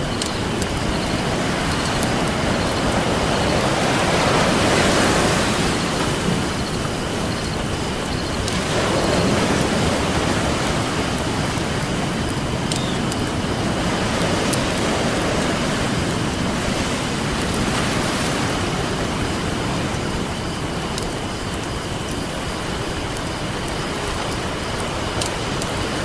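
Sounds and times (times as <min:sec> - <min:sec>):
ocean surf washing on a beach: 0:00.0 - 0:26.0.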